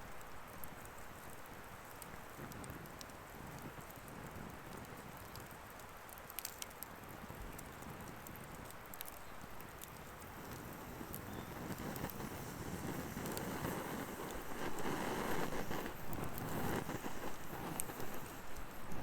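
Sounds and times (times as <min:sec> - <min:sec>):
fire crackling and popping: 0:00.0 - 0:19.0
steady rush of fire: 0:09.6 - 0:19.0.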